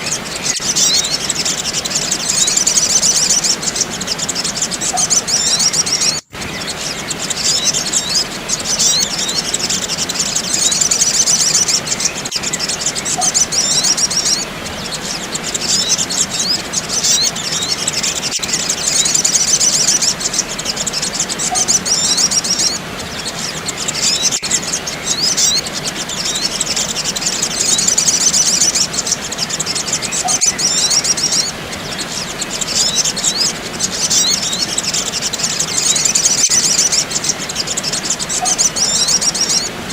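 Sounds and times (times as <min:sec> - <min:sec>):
birds twittering: 0:00.0 - 0:39.9.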